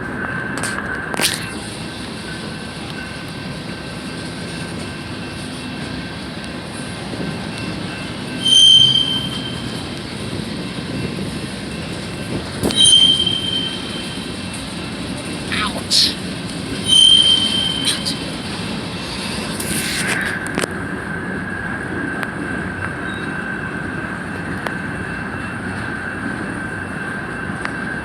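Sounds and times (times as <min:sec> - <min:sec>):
train wheels on rails: 0:00.0 - 0:28.0
high-pitched wheel squeal: 0:08.3 - 0:09.8, 0:12.6 - 0:14.2, 0:16.8 - 0:18.3.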